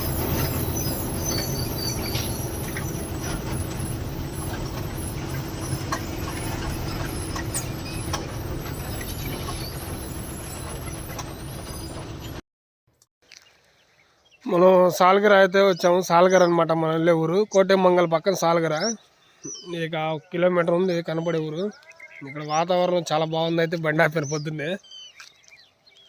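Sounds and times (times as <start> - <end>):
diesel engine rumbling: 0.0 - 12.4.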